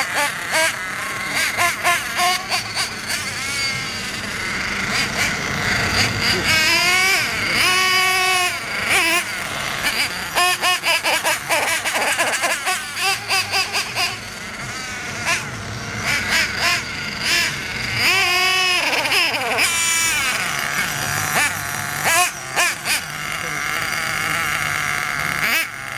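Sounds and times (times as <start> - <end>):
small nitro engine revving: 0.0 - 25.9.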